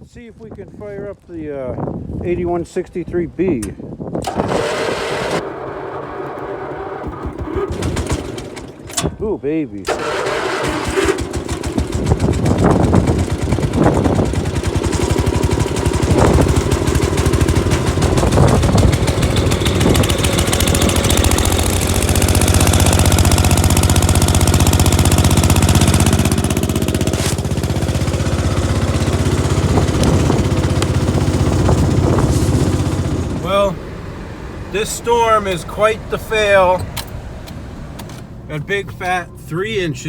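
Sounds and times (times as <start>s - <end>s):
tractor engine running loud: 4.2s - 9.0s, 9.9s - 37.1s.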